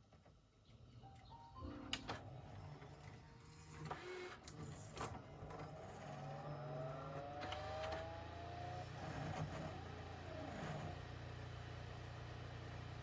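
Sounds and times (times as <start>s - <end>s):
small electric motor running: 8.7s - 11.1s.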